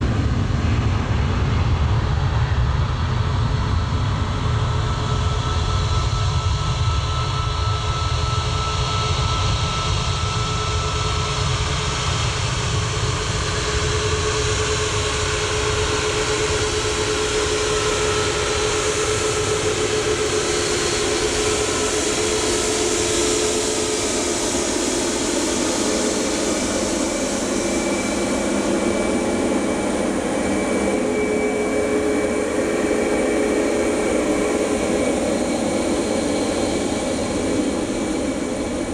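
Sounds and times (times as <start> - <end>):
jet engines rumbling at taxi power: 0.0 - 38.9.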